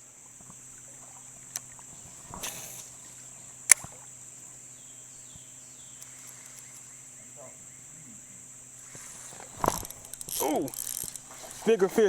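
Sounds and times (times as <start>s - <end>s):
high-pitched insect chorus: 0.0s - 12.0s
sharp click: 3.7s - 4.0s.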